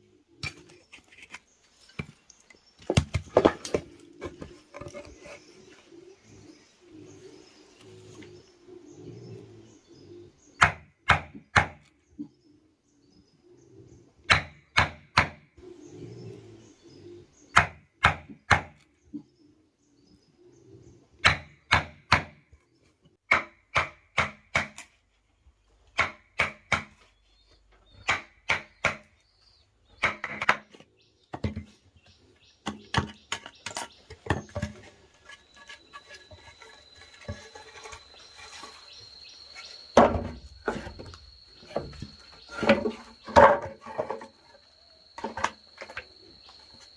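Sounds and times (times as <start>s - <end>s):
dove cooing: 3.6s - 10.6s, 15.6s - 17.5s, 19.2s - 21.2s.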